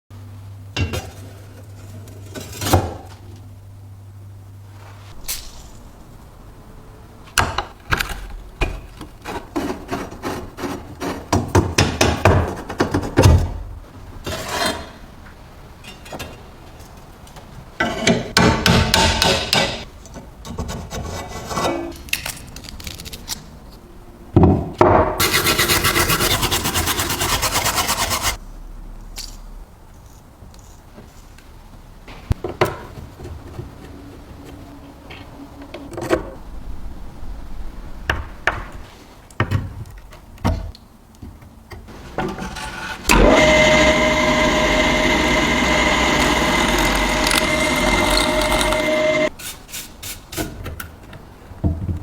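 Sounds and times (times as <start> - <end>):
tool scraping and rasping: 25.2 - 28.4, 42.3 - 49.3.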